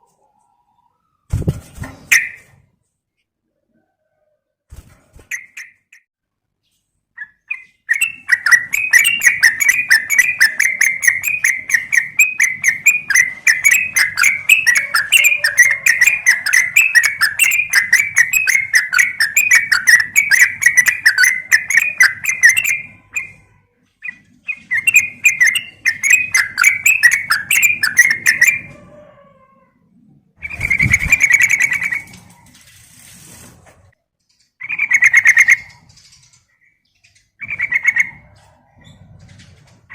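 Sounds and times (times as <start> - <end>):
bird chattering calls: 7.4 - 23.4.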